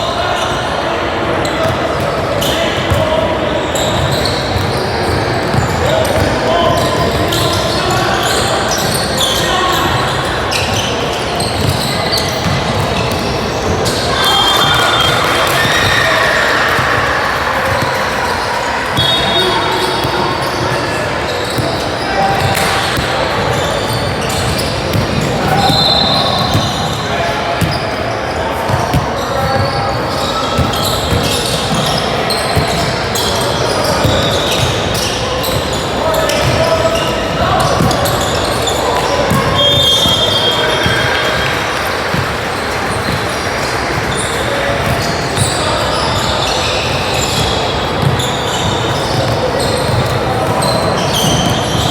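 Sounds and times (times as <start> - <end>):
hubbub of a hall: 0.0 - 51.9
basketball bouncing on court: 3.8 - 7.8, 9.8 - 14.0, 17.6 - 18.0, 21.4 - 27.0, 27.6 - 28.0, 28.6 - 46.4, 47.0 - 51.9.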